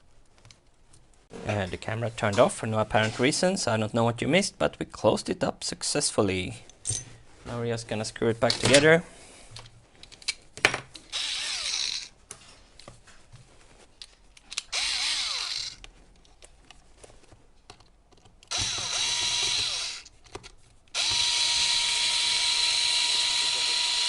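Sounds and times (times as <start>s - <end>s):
power screwdriver driving screws: 11.1s - 12.1s, 14.6s - 15.8s, 18.5s - 20.1s, 21.0s - 24.0s.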